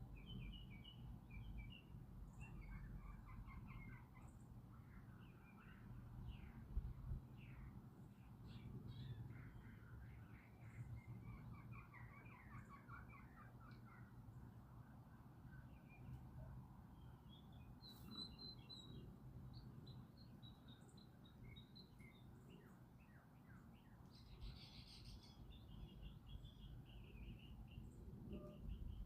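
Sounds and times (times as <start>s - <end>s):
faint small birds chirping: 0.0s - 29.0s.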